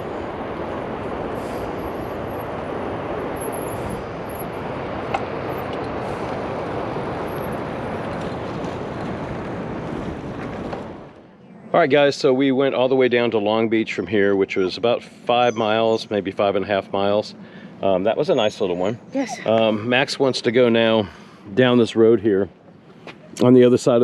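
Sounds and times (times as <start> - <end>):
bike tyre rumble on pavement: 0.0 - 11.2
wind noise on microphone: 0.0 - 12.1.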